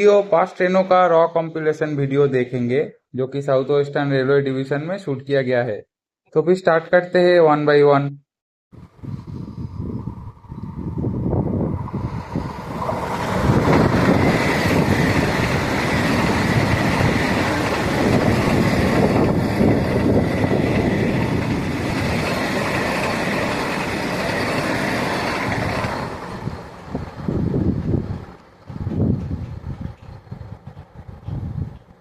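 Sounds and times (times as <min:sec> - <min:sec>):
train wheels rumbling on track: 0:09.4 - 0:32.0.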